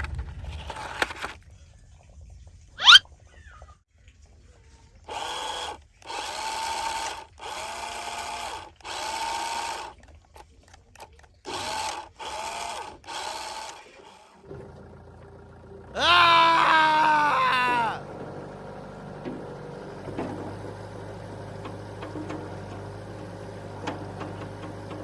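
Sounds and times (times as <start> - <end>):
small electric motor spinning: 5.1 - 10.1, 11.4 - 14.4.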